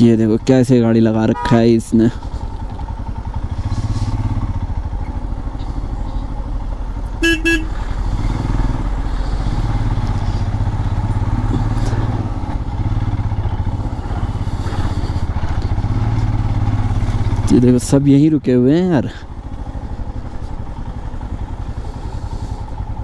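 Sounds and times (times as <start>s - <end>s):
motorcycle engine running: 0.0s - 23.0s
horn toots: 7.1s - 8.6s.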